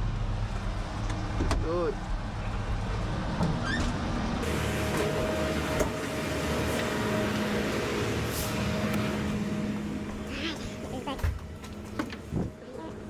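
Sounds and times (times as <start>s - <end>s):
diesel truck engine running: 4.4s - 13.0s
steady hum: 4.4s - 13.0s.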